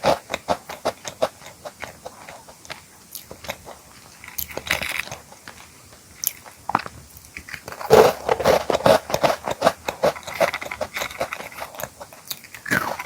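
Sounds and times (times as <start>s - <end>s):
crunchy chewing: 0.0s - 13.0s
crunchy snack crunching: 6.2s - 13.0s
loud bite: 12.6s - 13.0s.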